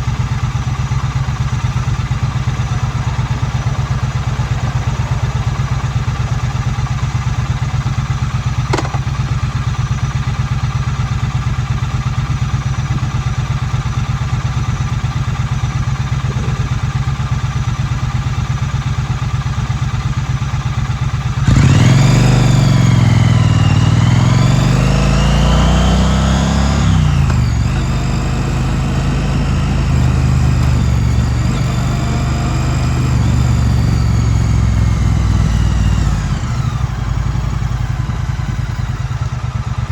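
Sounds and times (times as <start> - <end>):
motorcycle engine idling: 0.0 - 39.9
motorcycle revving and pulling away: 0.0 - 39.9
sharp click: 8.7 - 9.1.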